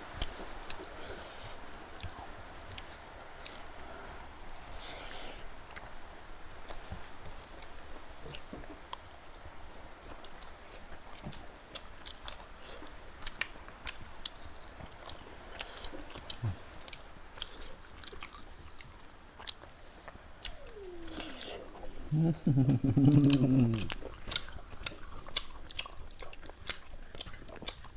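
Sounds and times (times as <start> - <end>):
chewing and biting food: 0.1 - 27.9
wet mouth clicks and crunches: 23.0 - 27.9.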